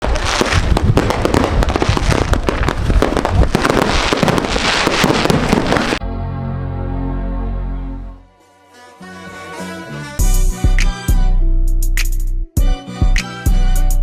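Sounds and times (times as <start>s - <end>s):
fireworks popping and crackling: 0.0s - 6.0s
music with steady bass: 6.0s - 14.0s.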